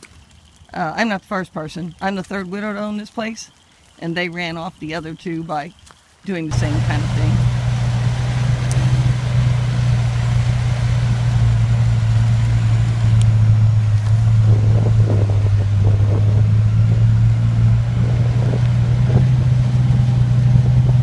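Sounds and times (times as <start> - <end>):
vehicle engine droning: 6.5 - 21.0.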